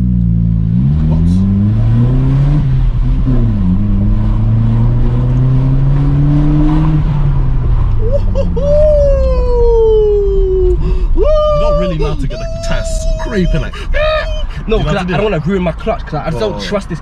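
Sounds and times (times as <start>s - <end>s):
car engine accelerating: 0.0s - 17.0s
high tone gliding downward: 8.0s - 15.5s.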